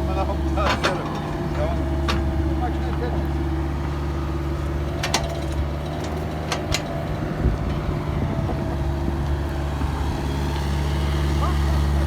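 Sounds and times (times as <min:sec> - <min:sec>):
heavy diesel engine running: 0:00.0 - 0:12.0
wind on microphone: 0:07.1 - 0:10.3.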